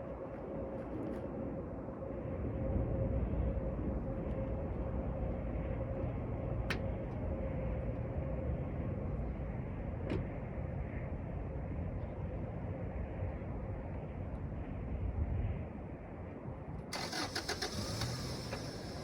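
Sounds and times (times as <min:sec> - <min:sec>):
vehicle rumble: 0:16.9 - 0:19.0.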